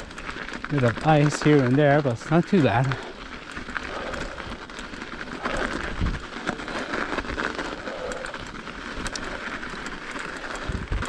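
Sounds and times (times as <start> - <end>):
bike tyres crackling on snow: 0.0 - 11.0
small clicks and rattles: 0.0 - 11.0.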